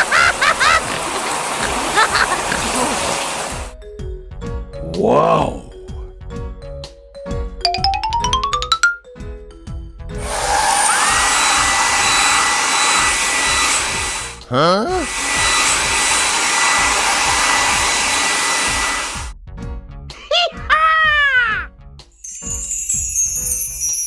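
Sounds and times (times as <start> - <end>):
hair dryer blowing with motor whine: 0.0 - 3.8, 10.2 - 19.4.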